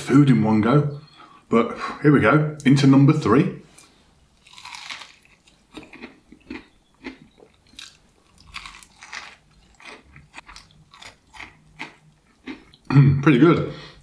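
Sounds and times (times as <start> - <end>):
crispy chicken crunching chewed: 4.4 - 12.8.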